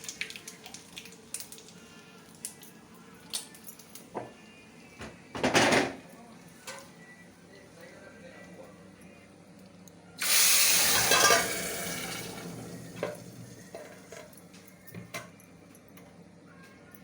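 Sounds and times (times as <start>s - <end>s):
water gushing: 10.2s - 13.7s.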